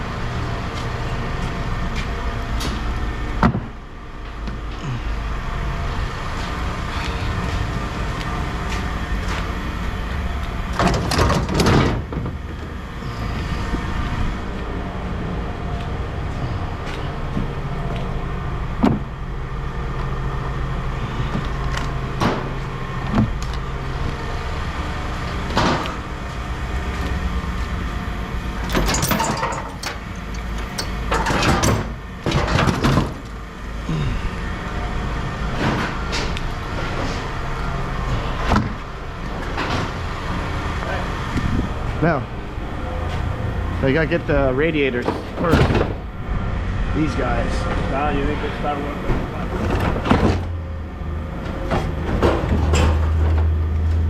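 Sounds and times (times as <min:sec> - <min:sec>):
vehicle engine idling: 0:00.0 - 0:54.0
scrap metal clanking: 0:28.6 - 0:33.2.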